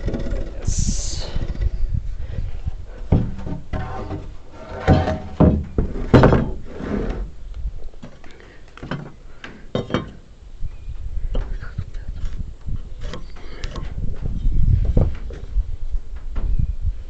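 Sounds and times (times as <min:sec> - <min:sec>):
wooden knocks and thuds: 0:03.0 - 0:06.6, 0:08.8 - 0:10.2.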